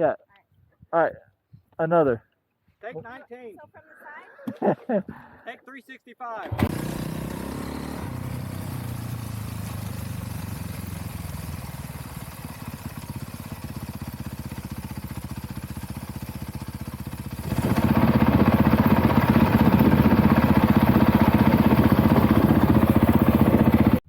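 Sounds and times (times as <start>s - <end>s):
dirt bike engine idling: 6.5s - 24.0s.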